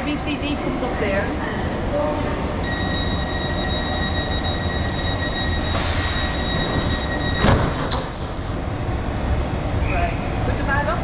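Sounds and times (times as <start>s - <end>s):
train rumbling: 0.0s - 11.0s
door-closing warning tone: 2.6s - 8.2s
train doors thudding shut: 5.6s - 8.6s.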